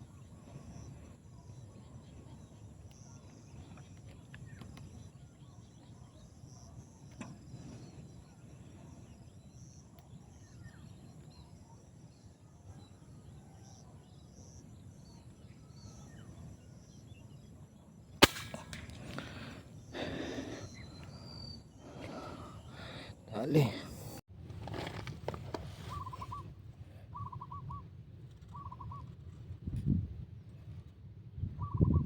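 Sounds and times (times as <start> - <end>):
faint bird calls: 0.0 - 24.2, 25.7 - 29.3, 31.6 - 32.0
air rifle shot: 18.2 - 19.5.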